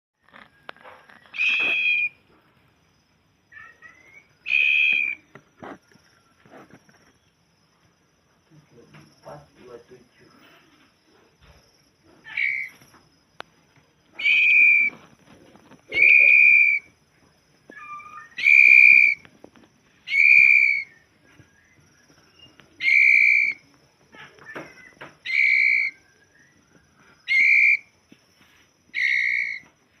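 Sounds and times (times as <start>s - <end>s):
bird whistling clear note: 1.3s - 2.2s.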